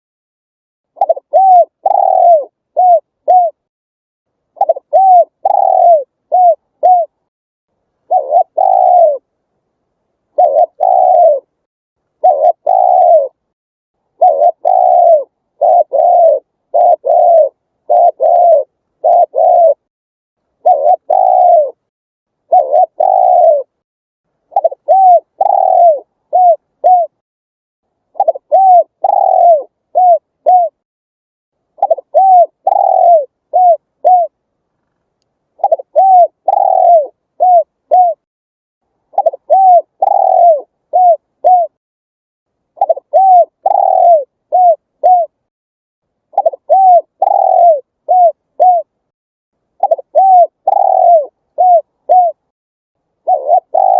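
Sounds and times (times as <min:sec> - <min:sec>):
dove cooing: 0:01.0 - 0:03.7, 0:04.6 - 0:07.2, 0:08.1 - 0:09.3, 0:10.3 - 0:11.5, 0:12.2 - 0:13.4, 0:14.2 - 0:19.9, 0:20.6 - 0:23.8, 0:24.5 - 0:27.2, 0:28.1 - 0:30.8, 0:31.8 - 0:34.4, 0:35.6 - 0:38.2, 0:39.1 - 0:41.8, 0:42.8 - 0:45.4, 0:46.3 - 0:48.9, 0:49.8 - 0:52.4, 0:53.2 - 0:53.9.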